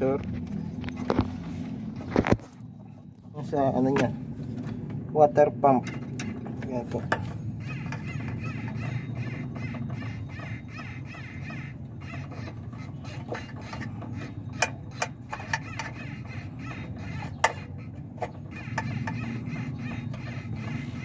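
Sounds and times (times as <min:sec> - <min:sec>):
car engine humming: 0:00.0 - 0:21.0
water pump bearing noise: 0:05.7 - 0:21.0.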